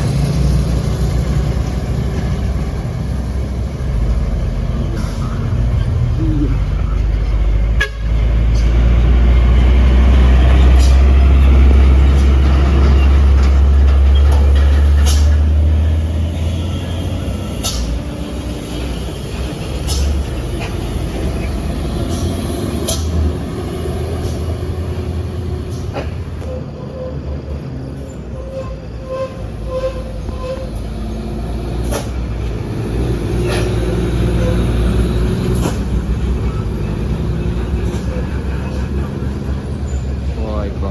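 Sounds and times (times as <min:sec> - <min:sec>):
diesel truck engine labouring: 0:00.0 - 0:40.9.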